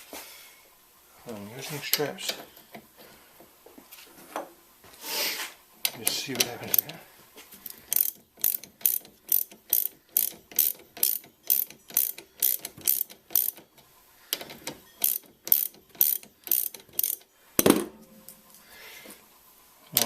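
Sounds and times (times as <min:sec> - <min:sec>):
ratchet wrench clicking: 0:05.8 - 0:07.0, 0:07.6 - 0:17.3.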